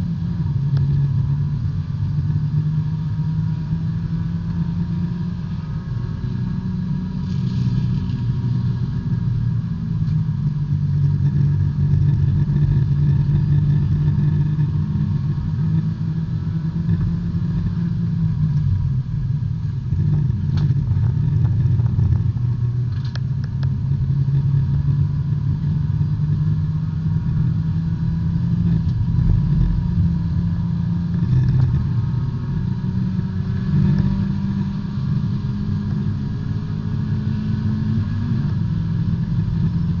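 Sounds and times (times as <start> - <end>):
race car engine: 0.0 - 40.0.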